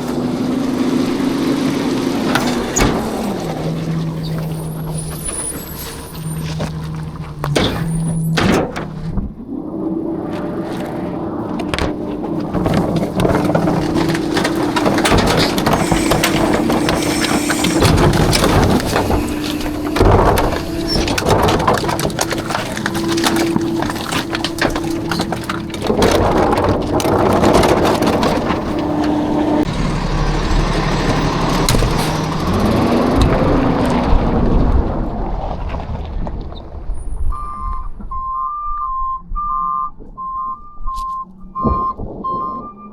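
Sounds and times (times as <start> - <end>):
metal clanking and rattling: 0.0 - 9.5, 11.4 - 34.3
falling trash: 0.0 - 36.9
garbage truck engine and hydraulics: 0.0 - 42.9.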